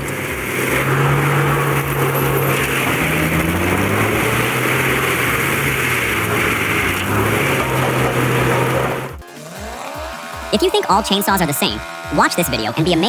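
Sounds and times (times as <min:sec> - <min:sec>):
heavy engine drone: 0:00.0 - 0:09.3
mulcher grinding stump: 0:00.0 - 0:10.5.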